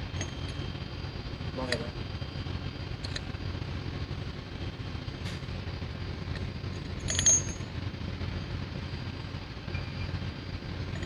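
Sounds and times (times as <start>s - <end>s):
low machinery rumble: 0.0s - 11.0s
sharp metallic clink: 7.0s - 7.7s.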